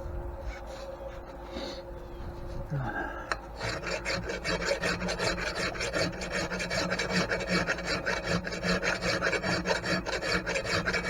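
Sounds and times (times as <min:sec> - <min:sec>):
hand file strokes on metal: 0:03.6 - 0:11.0.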